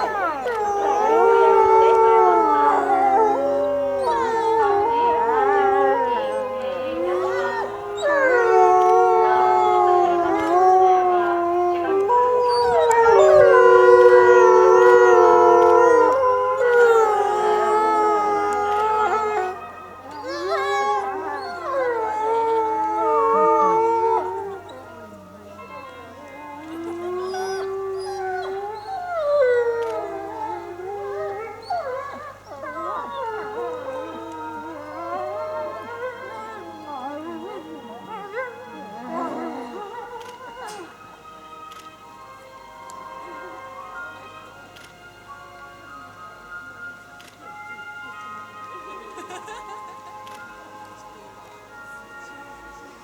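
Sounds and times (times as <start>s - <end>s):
wolves howling: 0.0s - 41.8s.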